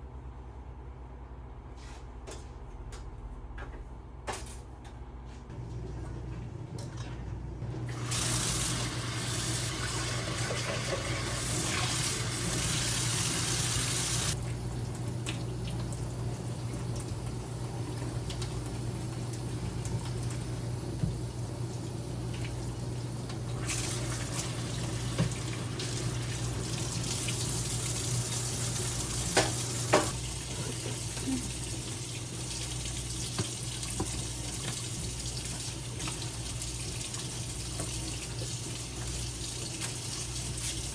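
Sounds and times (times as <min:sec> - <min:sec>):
tap water running into sink: 0:07.9 - 0:16.0, 0:22.3 - 0:40.9.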